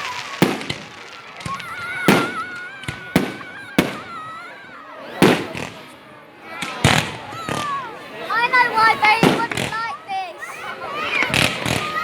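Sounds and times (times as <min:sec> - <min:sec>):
high firework whistle: 0:00.0 - 0:05.9
fireworks bangs: 0:00.0 - 0:10.2, 0:11.0 - 0:12.0.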